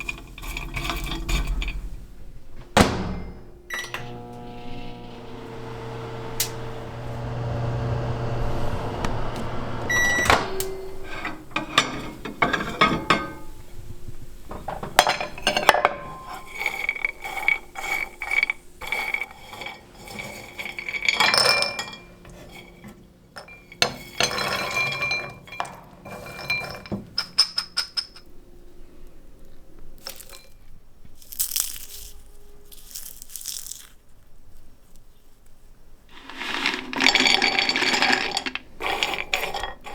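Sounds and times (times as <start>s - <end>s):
microwave oven humming: 2.8s - 11.5s
nuts clattering on a plate: 31.2s - 34.0s, 36.1s - 39.9s
nuts rattling when shaken: 31.2s - 34.0s, 36.1s - 39.9s.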